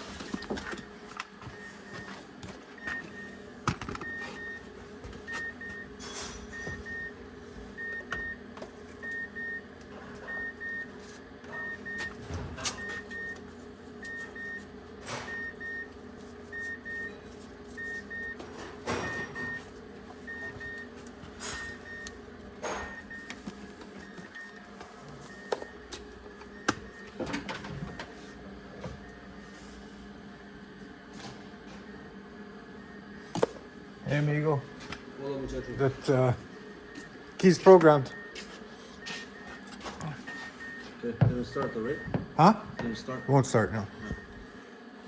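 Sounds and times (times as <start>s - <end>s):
steady low hum: 0.0s - 45.0s
car warning chime beeps: 4.0s - 8.4s, 9.0s - 13.4s, 15.2s - 18.4s, 19.0s - 19.7s, 20.3s - 20.9s, 21.5s - 22.2s, 39.0s - 44.4s.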